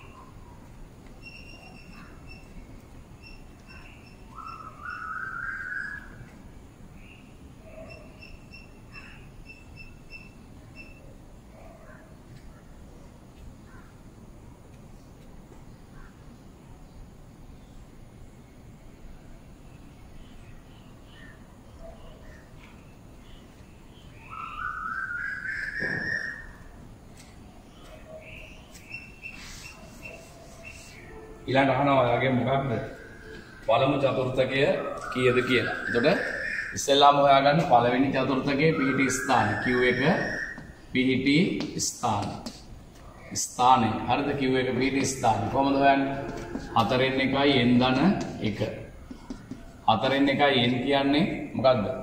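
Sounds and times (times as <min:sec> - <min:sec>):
small birds chirping: 0:00.0 - 0:31.3, 0:32.2 - 0:51.6
rising whistled bird call: 0:03.2 - 0:06.3, 0:24.1 - 0:26.8, 0:32.8 - 0:37.0, 0:38.2 - 0:40.9
rising whistle-like bird note: 0:24.3 - 0:26.7.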